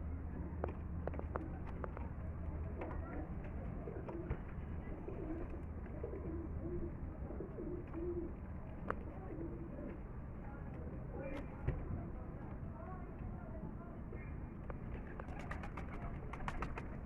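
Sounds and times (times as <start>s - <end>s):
pigeons cooing: 3.7s - 8.4s.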